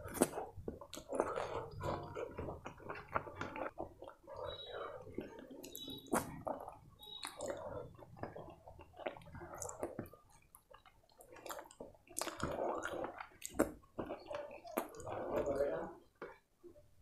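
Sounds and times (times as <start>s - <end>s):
wet chewing and lip smacking: 0.0s - 16.5s.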